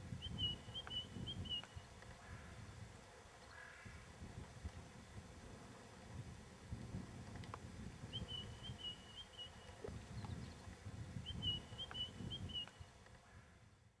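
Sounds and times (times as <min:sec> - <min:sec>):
bird singing: 0:00.2 - 0:01.9, 0:08.1 - 0:12.9.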